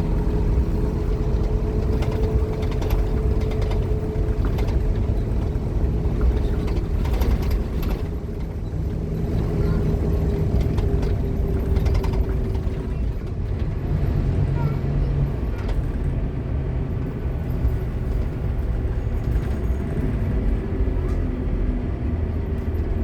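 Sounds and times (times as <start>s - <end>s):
bus diesel engine rumble: 0.0s - 23.0s
rattles and clicks: 1.1s - 8.9s, 10.3s - 13.8s.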